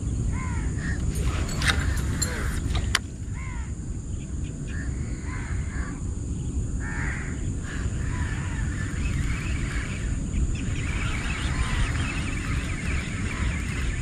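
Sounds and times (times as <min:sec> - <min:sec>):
birds calling: 0:00.0 - 0:14.0
steady low rumble: 0:00.0 - 0:14.0.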